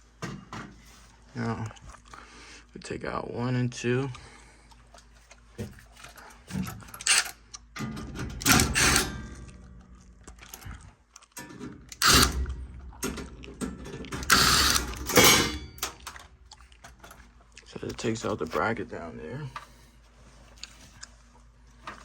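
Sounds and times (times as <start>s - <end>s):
power driver removing screws: 7.0s - 7.3s, 8.4s - 9.1s, 11.9s - 13.2s, 14.0s - 16.0s.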